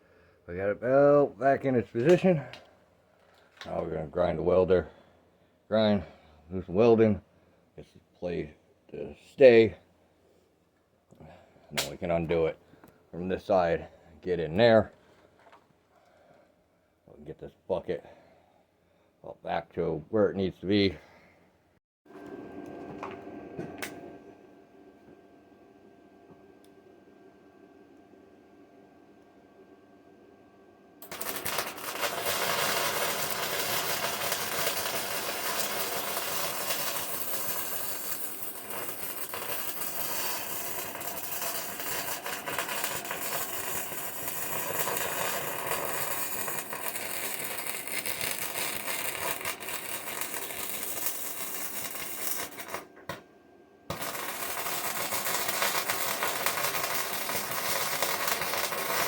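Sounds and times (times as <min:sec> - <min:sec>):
arc welding crackle: 0:31.0 - 0:52.9, 0:53.9 - 0:59.0.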